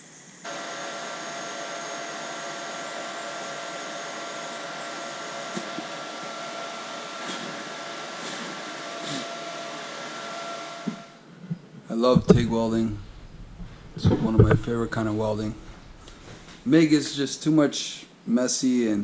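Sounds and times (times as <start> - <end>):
welding arc hissing: 0.0 - 9.4.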